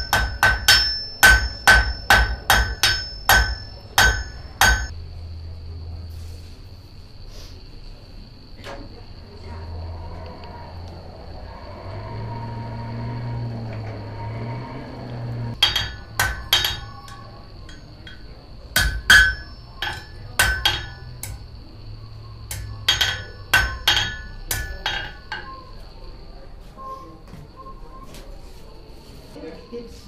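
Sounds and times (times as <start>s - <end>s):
hammer striking metal on anvil: 0.0s - 4.9s, 15.6s - 21.5s, 22.5s - 25.6s.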